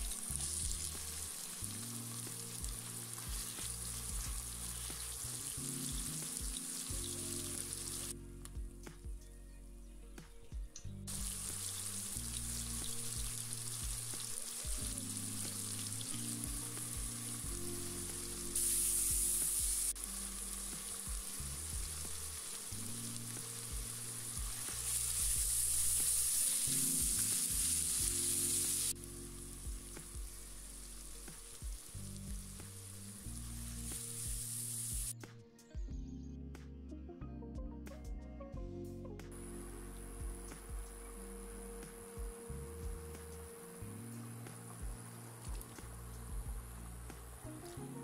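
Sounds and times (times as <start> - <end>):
onions sizzling in hot oil: 0.0 - 8.2, 11.1 - 35.2.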